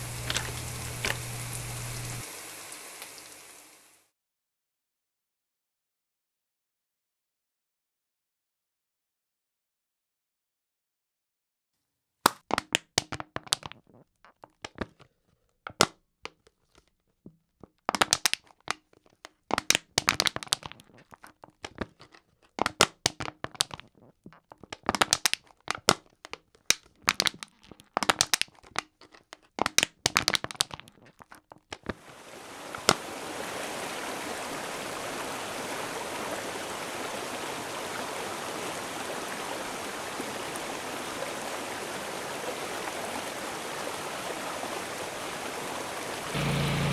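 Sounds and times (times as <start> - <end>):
plastic bottle crackling: 0.0 - 2.2, 12.3 - 32.1.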